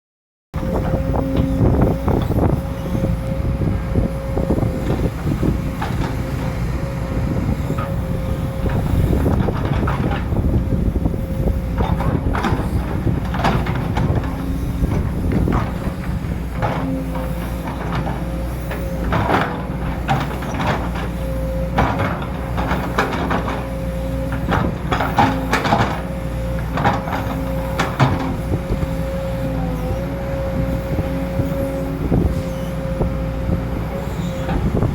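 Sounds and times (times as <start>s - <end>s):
diesel engine running: 0.6s - 34.9s
hydraulic whine: 24.0s - 34.9s.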